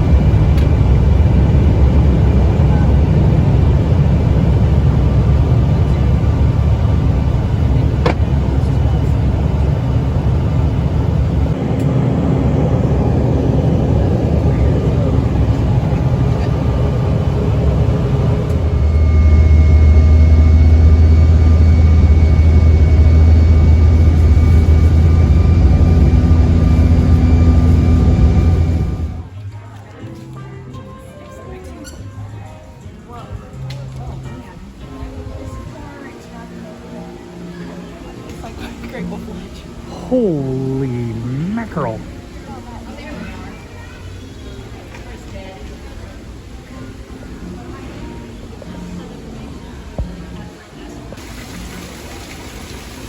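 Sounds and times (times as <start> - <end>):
strong low drone: 0.0 - 29.3, 39.9 - 42.1
truck cab engine road and wind noise: 0.0 - 29.3.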